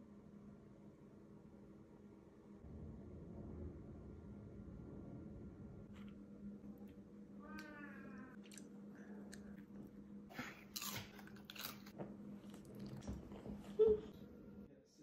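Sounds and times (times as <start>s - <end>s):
crunchy snack chewing: 10.4s - 13.1s.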